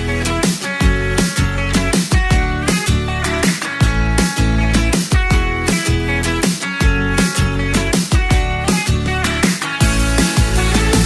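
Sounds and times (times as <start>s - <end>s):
repeating bass line: 0.0s - 11.0s
strummed guitar: 0.0s - 11.0s.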